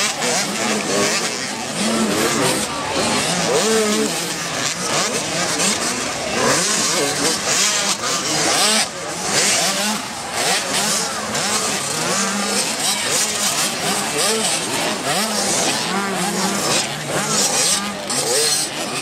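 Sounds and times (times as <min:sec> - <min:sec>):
motocross bikes revving: 0:00.0 - 0:19.0.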